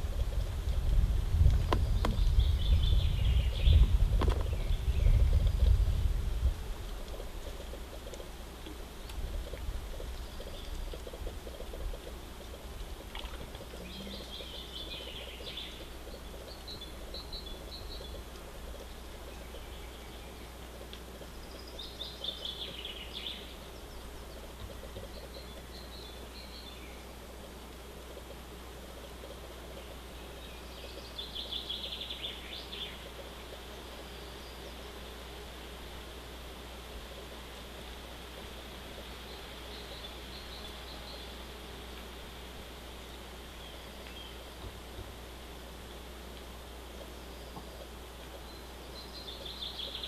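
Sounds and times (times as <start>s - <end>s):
outdoor background hiss: 0.0s - 50.0s
songbirds singing: 0.0s - 50.0s.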